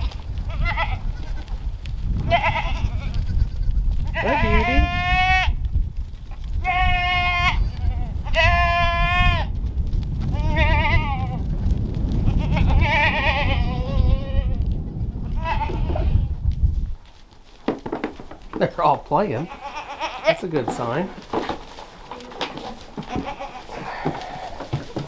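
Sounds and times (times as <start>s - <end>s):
goat kids bleating: 0.0s - 1.6s, 2.2s - 5.6s, 6.3s - 9.5s, 10.3s - 11.4s, 12.2s - 14.6s, 15.2s - 16.3s, 19.3s - 25.0s.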